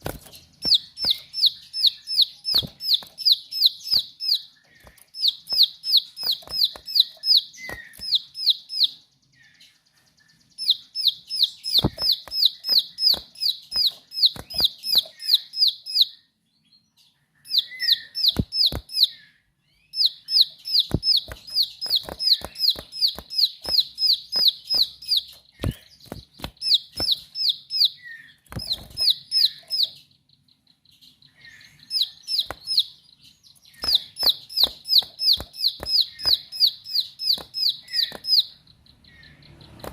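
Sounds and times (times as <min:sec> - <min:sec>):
sharp clicks: 0:00.0 - 0:08.5, 0:11.6 - 0:15.4, 0:18.2 - 0:19.1, 0:20.4 - 0:27.6, 0:28.4 - 0:29.9, 0:32.3 - 0:32.9, 0:33.6 - 0:38.5, 0:39.7 - 0:39.9
bird singing sharp high notes: 0:00.0 - 0:09.6, 0:10.4 - 0:16.3, 0:17.4 - 0:30.5, 0:31.2 - 0:39.9.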